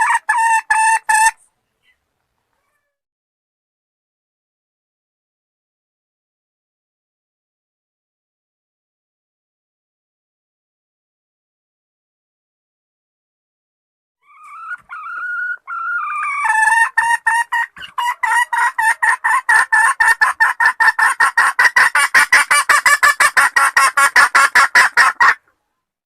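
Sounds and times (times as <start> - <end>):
hen clucking: 0.0 - 2.0, 14.2 - 25.6.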